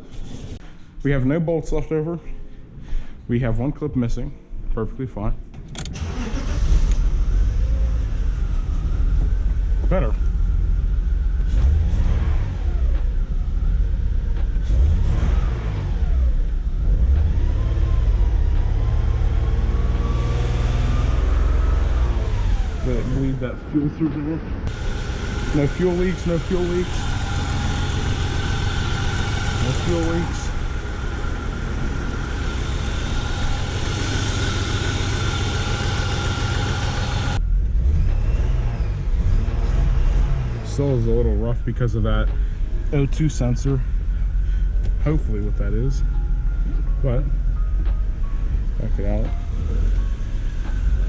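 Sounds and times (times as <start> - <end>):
car engine revving and idling: 5.6 - 51.0
car engine idling roughly: 24.7 - 37.4.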